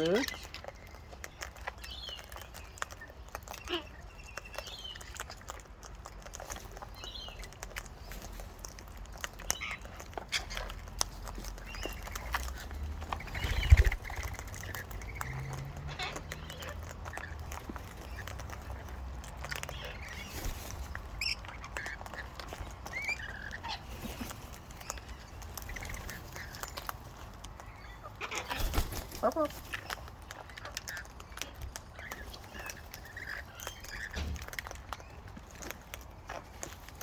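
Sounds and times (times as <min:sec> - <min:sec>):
parrots squawking: 0:13.2 - 0:20.2, 0:27.6 - 0:34.4.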